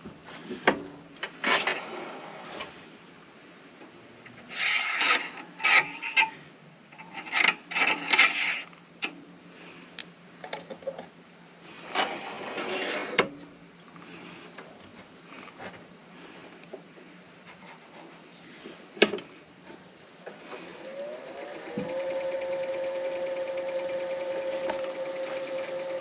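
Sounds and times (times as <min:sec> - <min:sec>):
crickets chirping: 0:00.0 - 0:26.0
turning tool scraping on lathe: 0:04.5 - 0:06.3, 0:11.8 - 0:13.2, 0:21.6 - 0:26.0
lathe motor hum: 0:20.5 - 0:26.0.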